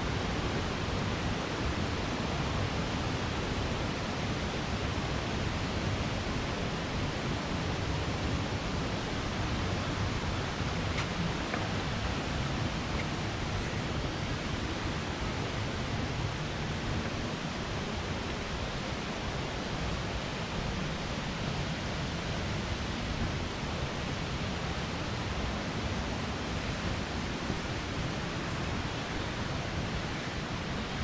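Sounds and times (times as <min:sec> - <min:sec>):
falling water rushing: 0:00.0 - 0:03.9.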